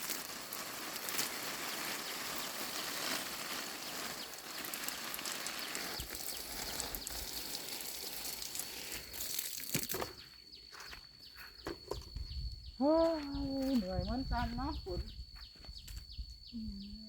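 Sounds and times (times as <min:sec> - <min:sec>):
garden hose spraying water: 0:00.0 - 0:10.3.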